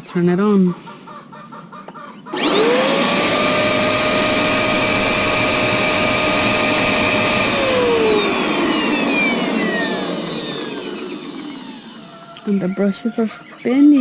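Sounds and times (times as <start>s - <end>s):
vacuum cleaner motor whine: 2.3s - 13.3s.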